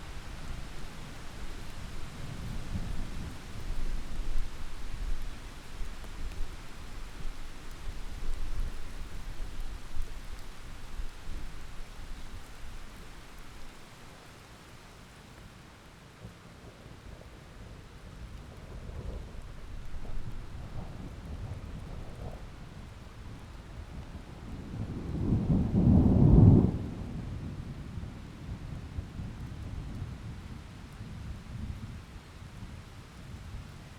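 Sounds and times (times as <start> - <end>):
heavy rain falling: 0.0 - 16.0, 16.9 - 33.9
rolling thunder rumble: 23.9 - 30.4.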